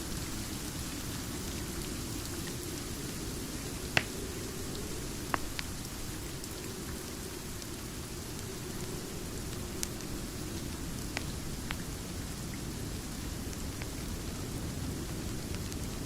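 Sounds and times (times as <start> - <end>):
fire crackles: 0.0 - 16.0
rain hiss: 0.0 - 16.0.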